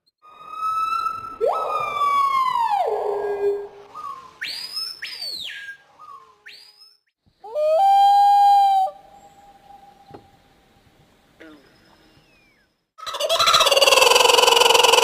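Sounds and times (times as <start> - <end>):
whistled bird swoops: 0.3 - 7.0
loud held bird call: 13.0 - 15.0.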